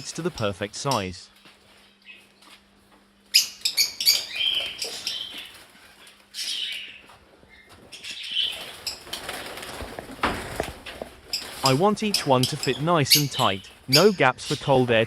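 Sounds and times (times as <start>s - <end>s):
parrots chirping: 3.3s - 9.2s, 11.2s - 15.0s
wings flapping: 7.7s - 12.9s.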